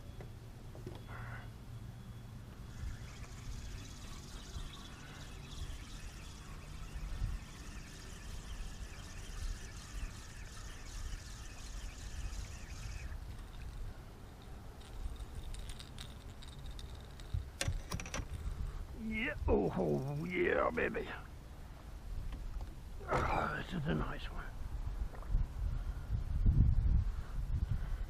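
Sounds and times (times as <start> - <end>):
running water: 2.6 - 17.7
scattered clicks and knocks: 13.4 - 18.4.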